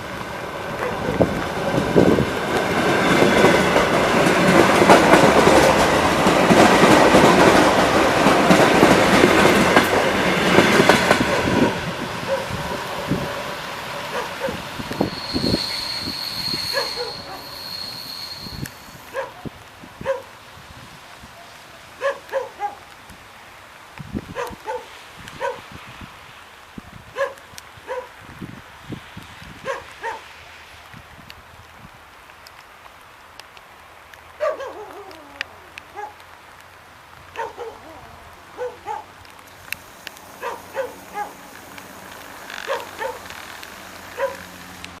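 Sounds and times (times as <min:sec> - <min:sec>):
electric train with high whine: 0:00.0 - 0:19.2
dog barking: 0:12.3 - 0:12.6, 0:14.1 - 0:14.6, 0:16.7 - 0:17.4, 0:19.1 - 0:19.4, 0:20.0 - 0:20.3, 0:21.4 - 0:22.8, 0:24.4 - 0:25.6, 0:27.2 - 0:28.1, 0:29.6 - 0:30.3, 0:34.4 - 0:35.2, 0:35.9 - 0:36.2, 0:37.4 - 0:38.0, 0:38.6 - 0:39.1, 0:40.4 - 0:41.4, 0:42.6 - 0:43.2, 0:44.2 - 0:44.4.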